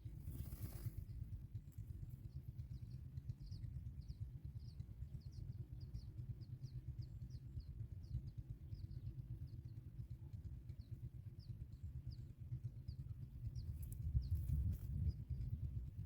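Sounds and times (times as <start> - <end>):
low rumble: 11.0 - 16.0.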